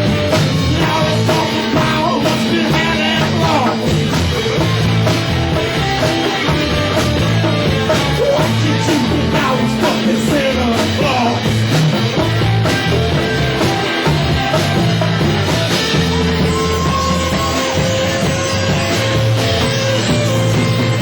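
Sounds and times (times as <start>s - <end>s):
rock band playing live: 0.0s - 21.0s
sliding pitched notes: 0.0s - 21.0s.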